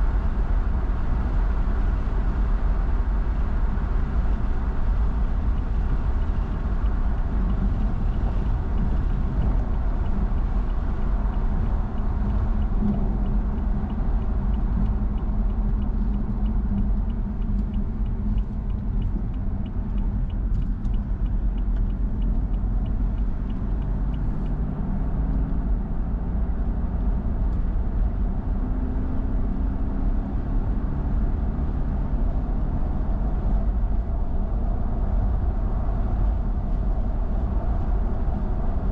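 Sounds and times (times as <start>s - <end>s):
car engine and road noise: 0.0s - 38.9s
light regular ticking: 5.4s - 24.9s.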